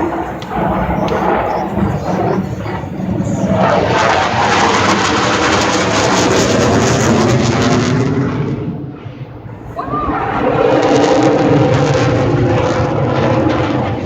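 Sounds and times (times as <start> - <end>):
jet aircraft passing overhead: 0.0 - 14.0.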